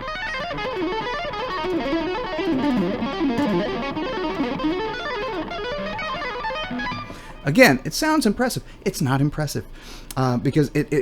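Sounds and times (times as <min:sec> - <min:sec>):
electric guitar fast run: 0:00.0 - 0:07.4.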